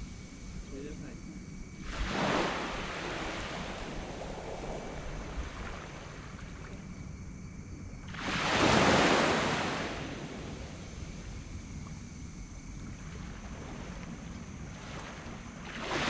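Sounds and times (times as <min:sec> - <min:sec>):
sea waves breaking on beach: 0:01.8 - 0:06.7, 0:08.1 - 0:10.8, 0:13.3 - 0:16.0.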